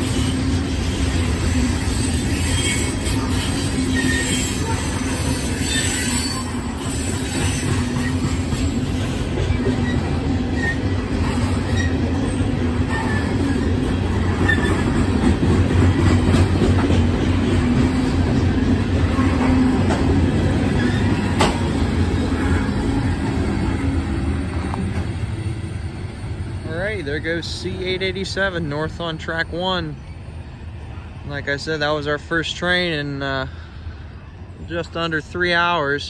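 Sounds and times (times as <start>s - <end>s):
rail joint clicks: 0.0s - 25.4s
train wheels rumbling on rail: 0.0s - 36.0s
faint wheel squeals: 1.6s - 8.4s.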